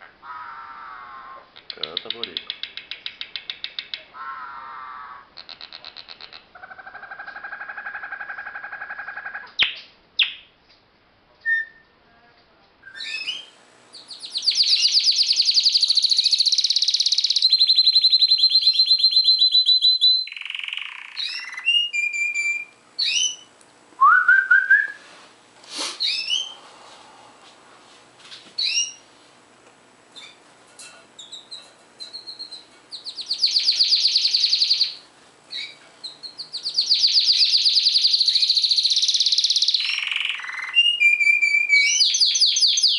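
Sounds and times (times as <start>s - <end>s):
birds singing and calling: 0.2s - 10.4s, 12.9s - 23.6s, 26.0s - 26.6s, 28.6s - 29.0s, 31.2s - 42.9s.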